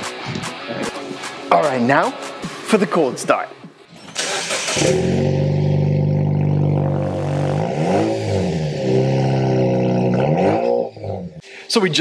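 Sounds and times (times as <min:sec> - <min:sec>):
starter motor cranking: 0:04.2 - 0:05.1.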